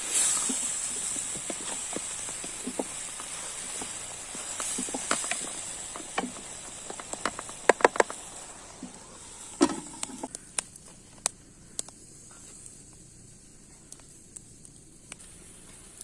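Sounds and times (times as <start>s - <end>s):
sharp clicks and knocks: 1.3s - 9.0s.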